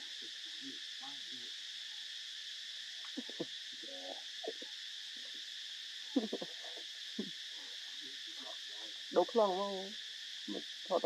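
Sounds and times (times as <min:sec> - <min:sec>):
steady high hiss: 0:00.0 - 0:11.0
monkeys squeaking and cooing: 0:06.2 - 0:07.3.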